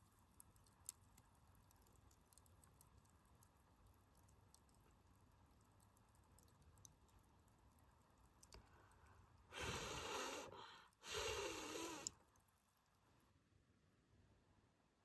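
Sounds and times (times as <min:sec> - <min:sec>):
faint campfire crackles: 0:00.0 - 0:13.2
breathy exhalations: 0:09.5 - 0:12.1.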